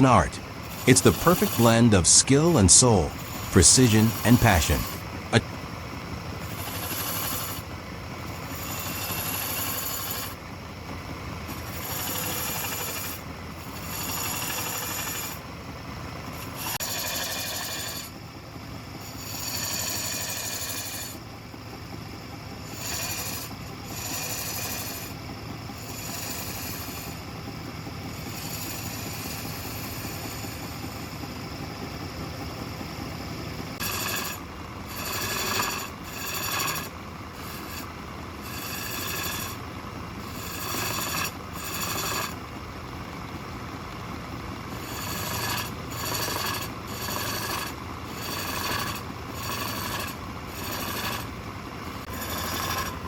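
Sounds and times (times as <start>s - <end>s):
wood lathe running: 0.4s - 1.6s, 6.4s - 10.4s, 11.5s - 15.4s, 16.3s - 18.1s, 19.0s - 21.2s, 22.7s - 25.1s, 25.8s - 27.2s, 28.2s - 30.7s, 33.8s - 42.6s, 44.7s - 53.0s
chisel scraping spinning wood: 6.4s - 7.6s, 8.3s - 10.4s, 11.5s - 15.4s, 16.3s - 18.1s, 19.0s - 21.2s, 22.7s - 25.2s, 25.8s - 27.3s, 28.1s - 31.0s, 33.8s - 42.4s, 44.7s - 53.0s.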